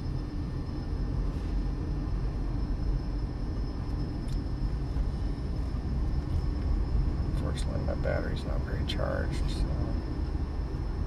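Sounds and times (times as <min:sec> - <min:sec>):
car interior road rumble: 0:00.0 - 0:11.0
faint high whine: 0:00.0 - 0:11.0.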